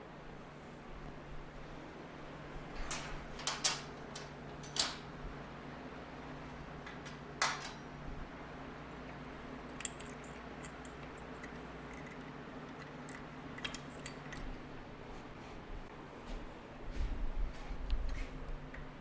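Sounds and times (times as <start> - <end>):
low electrical hum: 0.0 - 19.0
clinks of tools and metal parts: 2.8 - 5.1, 6.8 - 8.1, 9.0 - 14.6.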